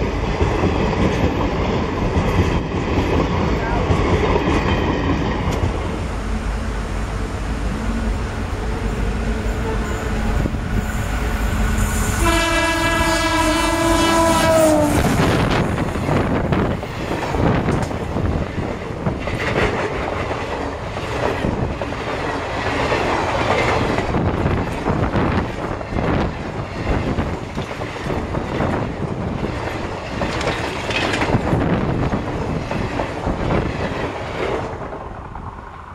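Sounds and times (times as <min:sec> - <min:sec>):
locomotive horn: 0:06.0 - 0:15.4
train wheels clattering: 0:08.5 - 0:35.4.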